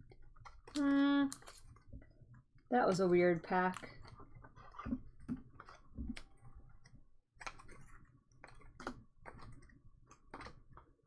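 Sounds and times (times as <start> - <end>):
cards flipping clicks and taps: 5.2 - 10.8.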